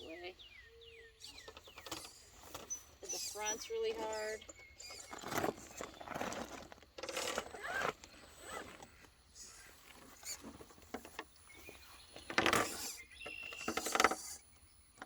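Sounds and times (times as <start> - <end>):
tires clicking and scraping on rock: 1.0 - 15.0
loud scrabbling on rock: 4.0 - 14.4.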